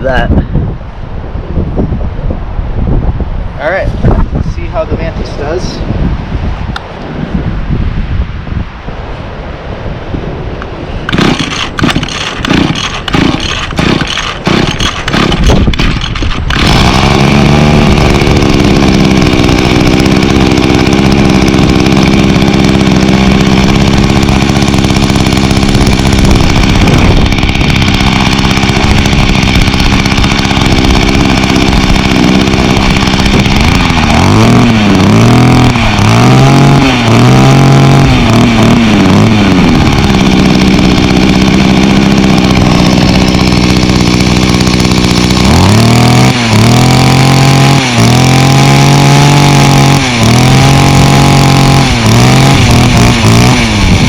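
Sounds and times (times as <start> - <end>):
pull starter strokes: 11.1 - 54.0
two-stroke engine running and revving: 11.1 - 54.0.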